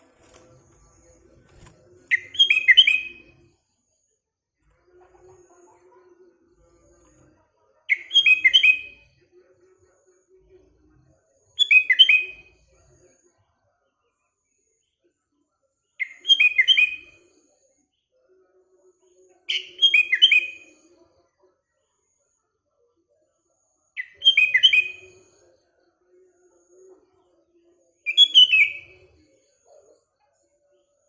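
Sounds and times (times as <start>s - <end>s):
bulbul singing: 1.1s - 3.4s.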